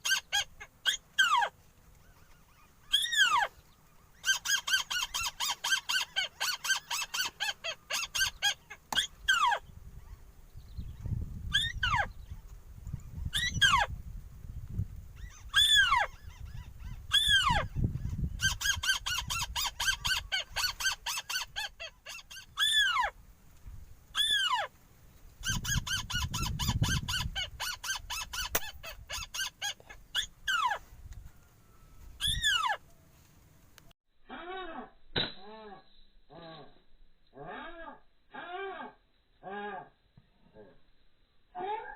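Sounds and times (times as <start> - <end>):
wind rumble on microphone: 9.2 - 20.8, 23.1 - 24.2, 25.2 - 29.3, 30.3 - 32.6
bird whistling calls: 32.2 - 32.8.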